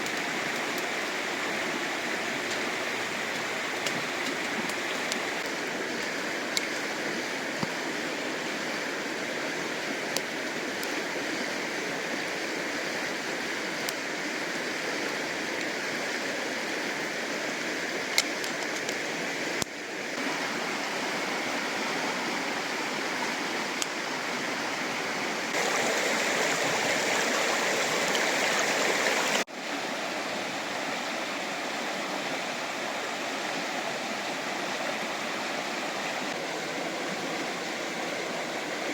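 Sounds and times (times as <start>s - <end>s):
river rushing: 0.0s - 18.0s, 20.2s - 38.9s.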